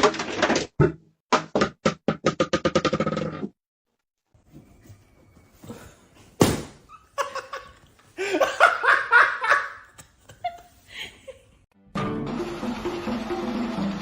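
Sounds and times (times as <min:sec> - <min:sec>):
person laughing: 0:07.1 - 0:11.6.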